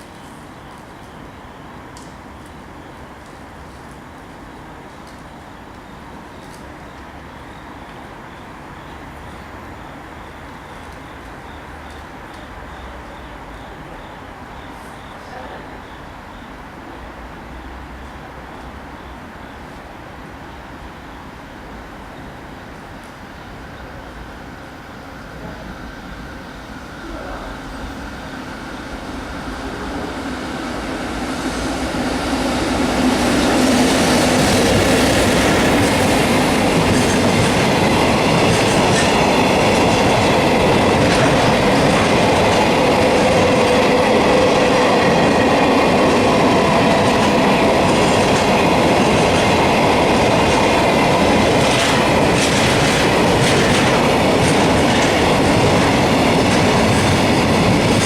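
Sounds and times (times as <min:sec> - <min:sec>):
freight train passing: 0:00.0 - 0:58.0
wheels clattering over rail joints: 0:46.9 - 0:58.0.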